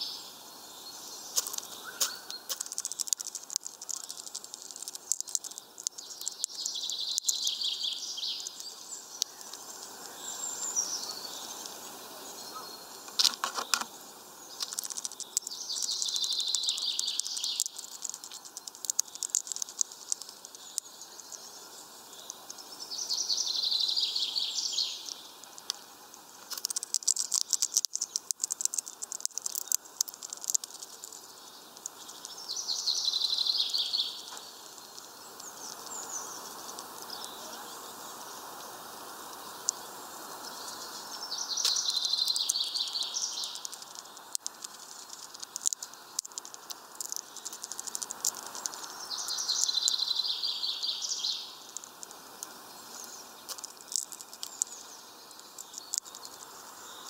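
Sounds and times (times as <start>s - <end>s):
bird pecking and cracking seeds: 1.3s - 10.2s, 13.0s - 21.0s, 23.2s - 37.4s, 41.4s - 57.0s
songbird singing high phrase: 5.2s - 11.6s, 14.5s - 17.8s, 20.6s - 25.3s, 31.3s - 38.1s, 40.4s - 43.7s, 48.8s - 51.6s.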